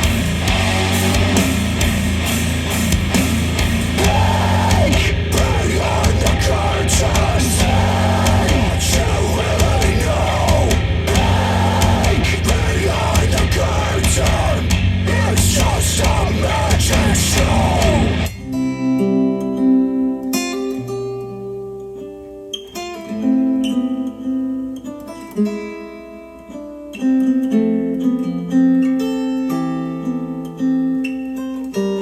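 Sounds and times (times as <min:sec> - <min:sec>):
hard rock music: 0:00.0 - 0:18.6.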